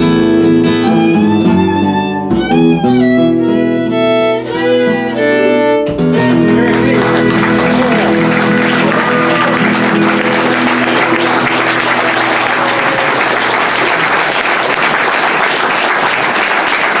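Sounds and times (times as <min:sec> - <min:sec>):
guitar and violin final chord: 0:00.0 - 0:13.8
audience applause: 0:06.1 - 0:17.0.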